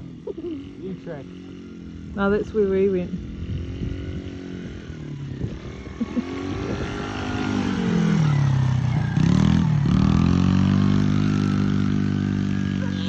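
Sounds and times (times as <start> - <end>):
small motorbike engine revving: 0.0 - 13.0.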